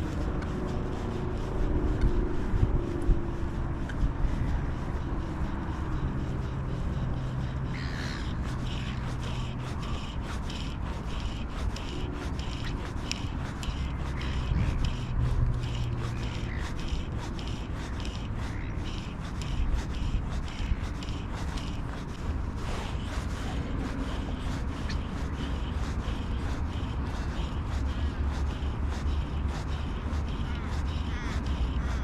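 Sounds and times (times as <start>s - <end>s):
low steady hum: 0.0s - 32.0s
wind rumbling on microphone: 0.0s - 32.0s
birds calling: 3.8s - 32.0s.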